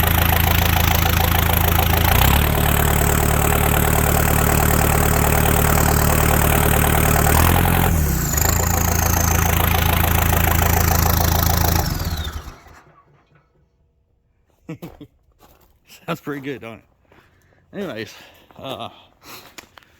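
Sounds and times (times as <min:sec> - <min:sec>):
tractor engine idling: 0:00.0 - 0:13.4.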